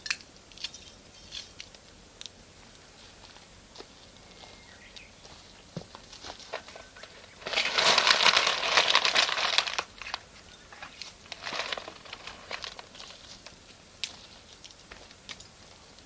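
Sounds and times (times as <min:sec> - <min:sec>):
small crackles: 0:00.5 - 0:16.0
dense crinkling rustling: 0:05.2 - 0:16.0.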